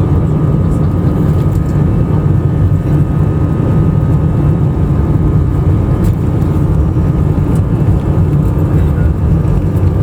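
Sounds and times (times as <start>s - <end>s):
faint steady whine: 0.0s - 10.0s
jet engine cabin rumble: 0.0s - 10.0s.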